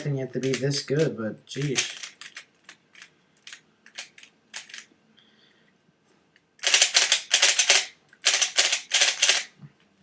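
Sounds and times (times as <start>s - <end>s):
puzzle cube turning clicks: 0.4s - 4.9s, 6.6s - 9.5s.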